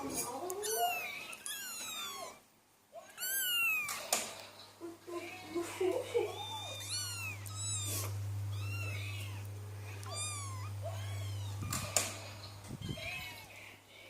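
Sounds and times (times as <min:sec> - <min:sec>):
kitten meowing: 0:00.5 - 0:02.4, 0:03.0 - 0:04.0, 0:06.3 - 0:12.1, 0:12.7 - 0:13.5
steady low hum: 0:04.7 - 0:14.0.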